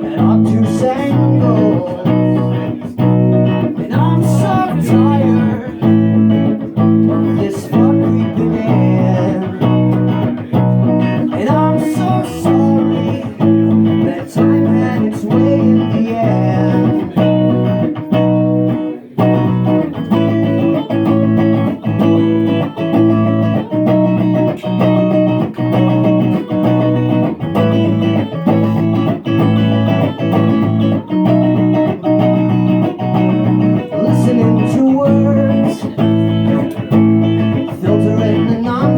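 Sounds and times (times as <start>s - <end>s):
electric guitar strumming chords: 0.0s - 38.9s.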